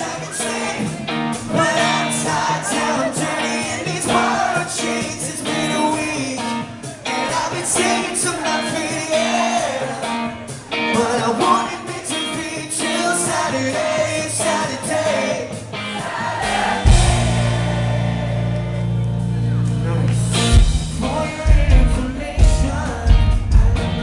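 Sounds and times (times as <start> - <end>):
person singing: 0.0 - 15.6, 20.9 - 24.0
live rock band playing: 0.0 - 24.0.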